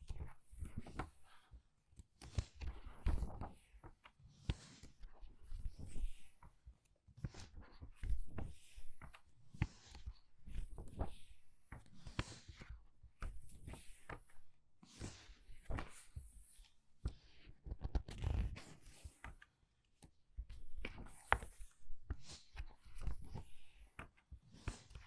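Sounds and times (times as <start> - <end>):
book pages turning: 17.6 - 19.3.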